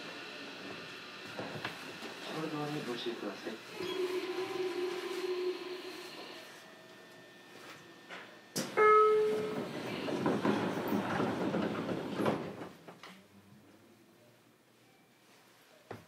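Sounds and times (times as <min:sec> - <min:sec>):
short pitched tone: 0:03.8 - 0:05.6
train rushing noise: 0:09.2 - 0:12.8.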